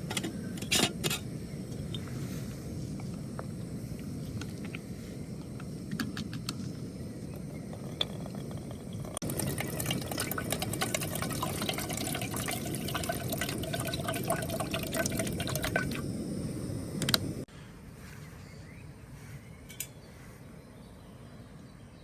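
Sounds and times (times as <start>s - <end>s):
water pouring into container: 7.3s - 16.0s.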